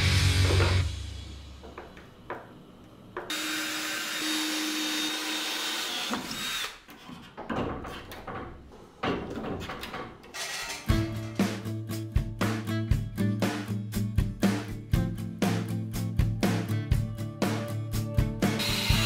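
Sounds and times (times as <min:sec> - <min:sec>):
handheld power tool running: 0:03.3 - 0:06.8, 0:18.6 - 0:19.0
knocks and clatters: 0:06.9 - 0:11.5.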